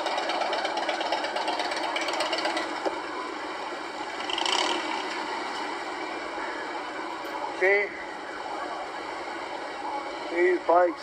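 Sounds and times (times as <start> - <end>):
motorcycle engines running: 0.0 - 7.6.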